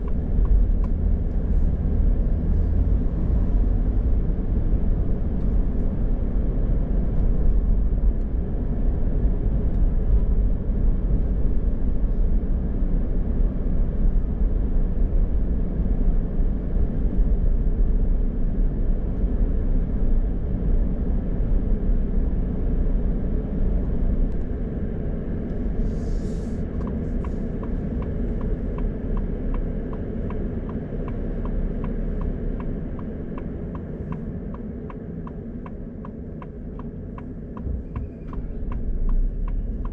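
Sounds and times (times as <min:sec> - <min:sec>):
car road and engine rumble: 0:00.0 - 0:39.9
turn signal ticking: 0:26.8 - 0:39.9.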